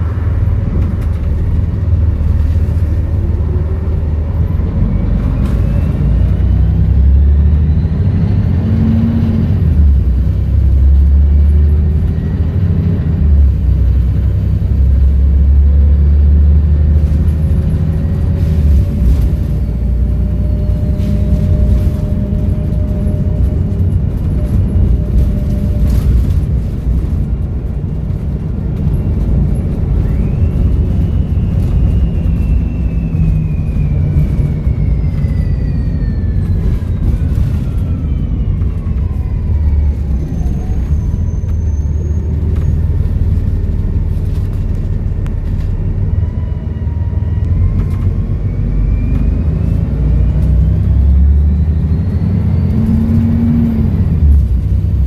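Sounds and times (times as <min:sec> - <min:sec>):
bus diesel engine rumbling: 0:00.0 - 0:55.0
turbo whistling: 0:30.0 - 0:38.8.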